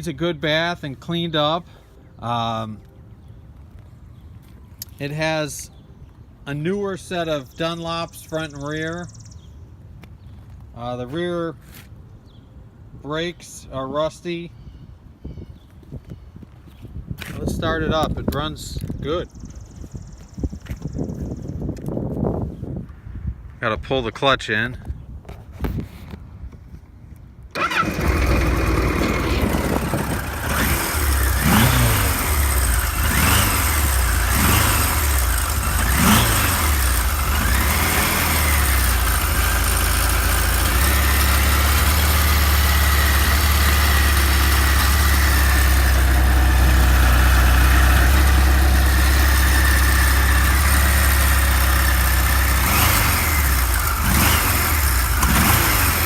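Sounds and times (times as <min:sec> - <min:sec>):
motorcycle engine revving and idling: 0:27.6 - 0:56.0.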